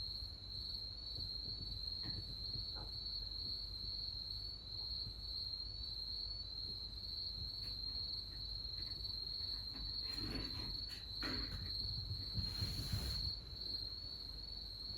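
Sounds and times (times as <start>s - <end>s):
crickets trilling: 0.0s - 14.9s
brief rustles and scrapes: 9.6s - 13.6s.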